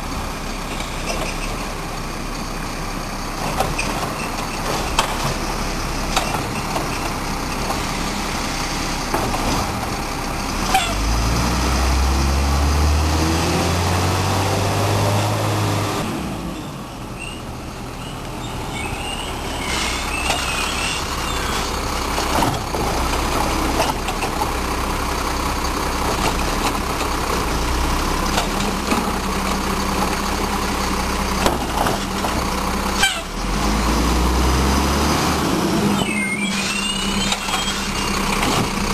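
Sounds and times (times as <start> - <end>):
diesel truck engine revving: 0.0 - 38.9
brief high squeal: 18.0 - 21.7, 36.0 - 38.2.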